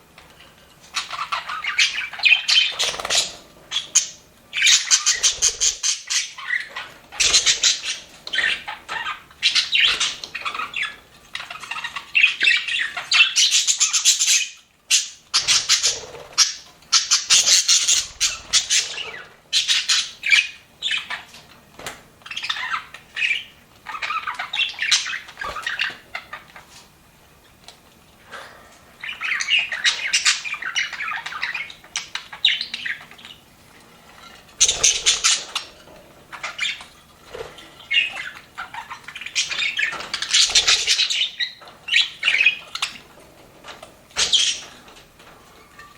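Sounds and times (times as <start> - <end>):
budgerigars chattering and warbling: 0.9 - 21.3, 22.2 - 26.6, 29.0 - 33.4, 34.3 - 43.1, 44.2 - 44.8.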